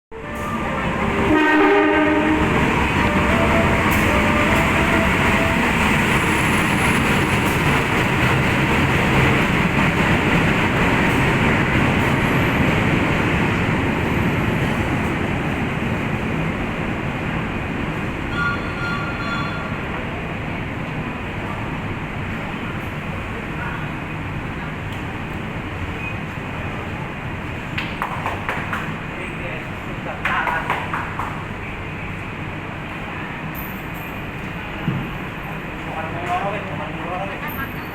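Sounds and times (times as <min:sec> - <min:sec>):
train horn blasting: 0:00.1 - 0:04.7
train wheels rumbling on rails: 0:00.2 - 0:37.9.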